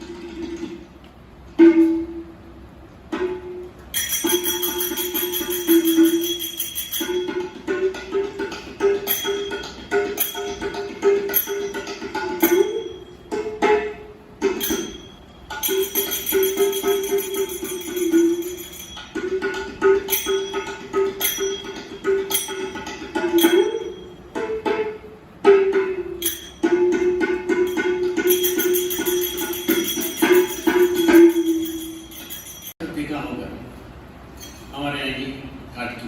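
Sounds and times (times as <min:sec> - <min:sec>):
jingling bells: 0:04.0 - 0:07.6, 0:09.0 - 0:10.7, 0:11.3 - 0:13.2, 0:14.6 - 0:24.3, 0:26.2 - 0:32.8
hand drum beating: 0:04.0 - 0:32.8.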